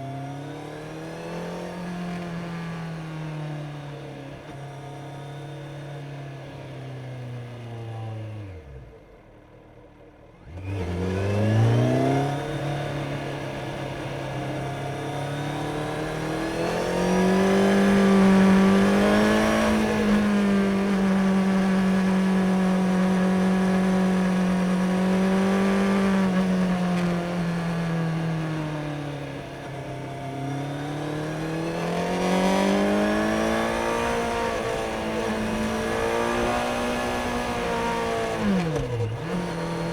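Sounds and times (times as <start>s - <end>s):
motorcycle engine revving: 10.4s - 39.9s.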